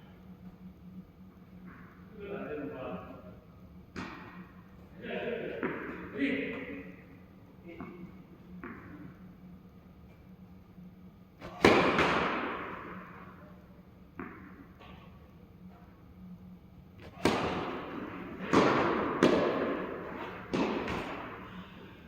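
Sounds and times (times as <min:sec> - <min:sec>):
tennis ball bouncing on court: 0:03.9 - 0:04.5, 0:05.5 - 0:06.8, 0:07.7 - 0:09.2, 0:11.4 - 0:13.4, 0:14.1 - 0:15.1, 0:17.0 - 0:21.5
tennis ball struck by rackets: 0:03.9 - 0:04.5, 0:05.6 - 0:06.0, 0:08.6 - 0:09.0, 0:11.4 - 0:13.4, 0:14.1 - 0:15.1, 0:17.0 - 0:21.5.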